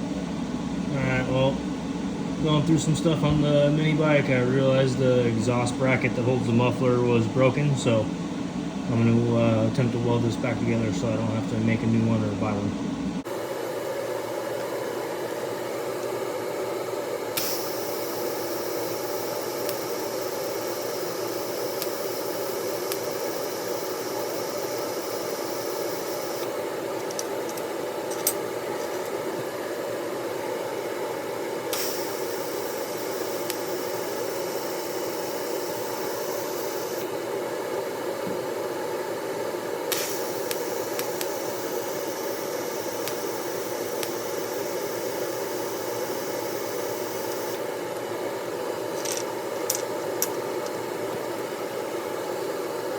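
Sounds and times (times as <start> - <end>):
bright welding sizzle: 13.3 - 29.3, 31.5 - 37.4, 39.3 - 51.8
welding arc hissing: 17.4 - 26.5, 31.7 - 37.2, 39.8 - 47.7.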